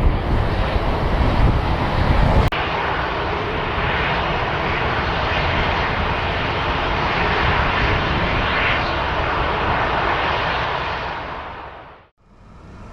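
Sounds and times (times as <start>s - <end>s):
turboprop engines droning: 0.0s - 12.9s
wind rumble on microphone: 0.0s - 12.9s.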